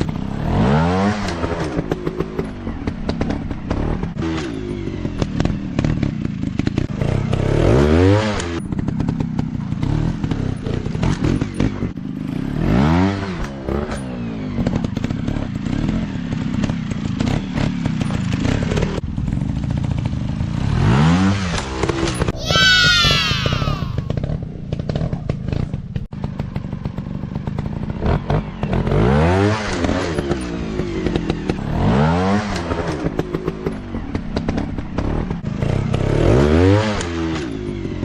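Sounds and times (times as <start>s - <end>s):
dirt bike engines revving: 20.5s - 26.4s.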